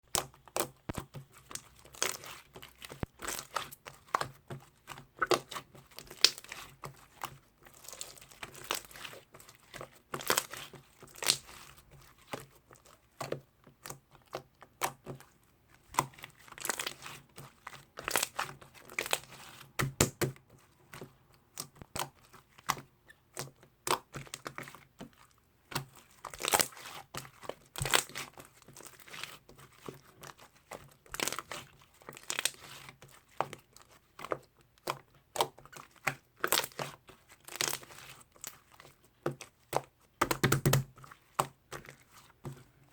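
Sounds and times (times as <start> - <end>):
crinkling and rustling: 0.2 - 14.0, 24.2 - 42.9.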